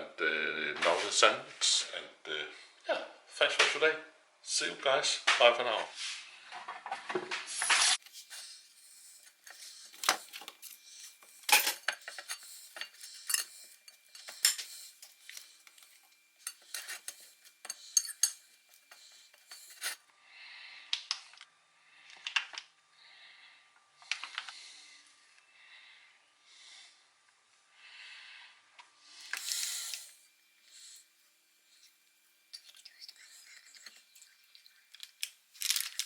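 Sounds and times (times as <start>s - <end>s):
cutlery and dishes clinking: 9.5s - 20.0s.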